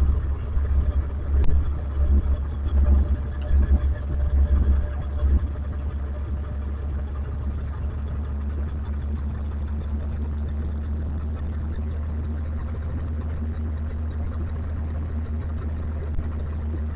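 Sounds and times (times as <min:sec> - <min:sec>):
motorcycle engine rumble: 0:00.0 - 0:16.9.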